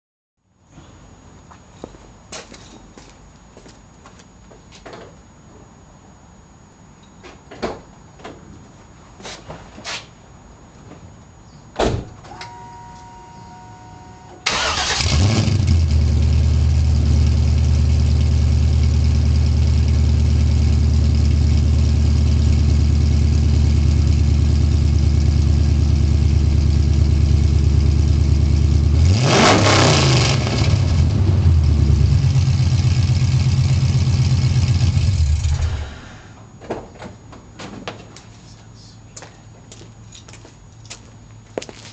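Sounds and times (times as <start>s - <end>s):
short steady tone: 12.3s - 14.5s
car engine starting and idling: 12.3s - 36.6s
engine revving: 14.5s - 19.8s, 27.6s - 36.0s.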